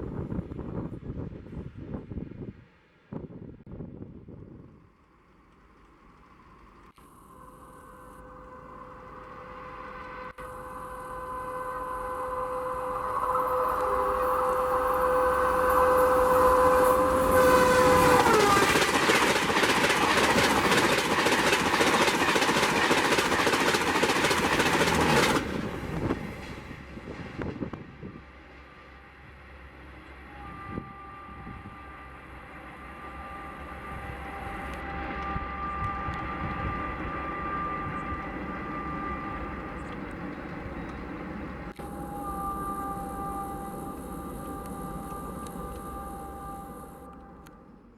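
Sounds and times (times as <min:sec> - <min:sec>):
train rumble: 0:00.0 - 0:47.9
train horn: 0:07.0 - 0:47.9
wheels clattering over rail joints: 0:16.6 - 0:27.0.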